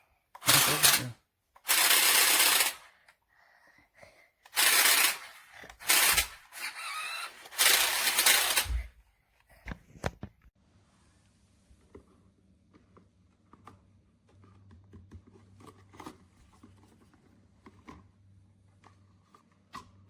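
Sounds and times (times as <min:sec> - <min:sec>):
sharp clicks: 0:00.4 - 0:02.9
toy electric motor and gears: 0:00.4 - 0:03.2, 0:04.4 - 0:09.0.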